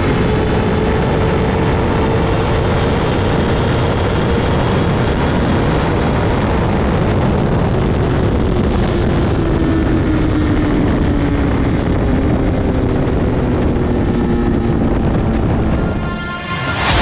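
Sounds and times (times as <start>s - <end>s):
loud steady rush of noise: 15.5s - 17.0s.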